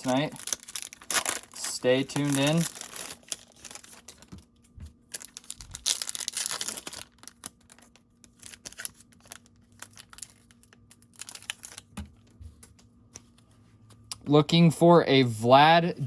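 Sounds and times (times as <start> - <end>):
wrapper crinkling and tearing: 0.0 - 4.4, 5.0 - 12.0.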